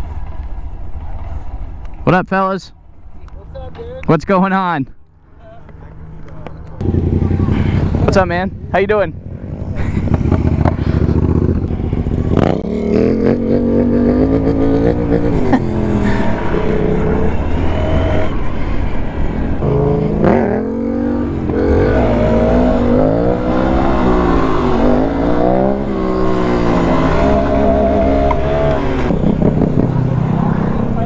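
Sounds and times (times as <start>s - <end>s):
vehicle engine revving: 6.7s - 31.0s.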